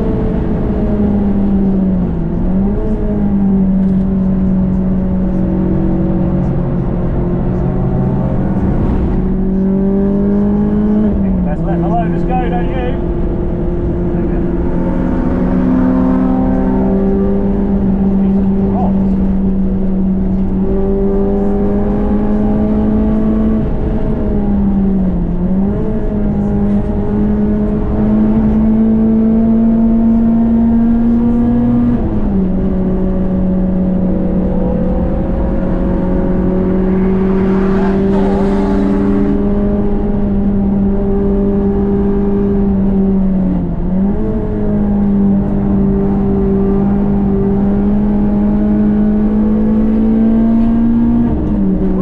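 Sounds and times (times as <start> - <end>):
car engine revving high: 0.0 - 52.0.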